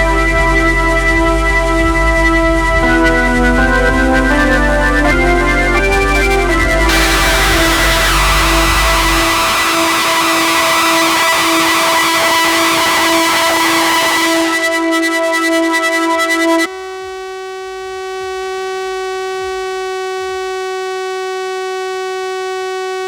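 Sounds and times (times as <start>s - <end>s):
buzzy synthesizer drone: 0.0s - 20.9s.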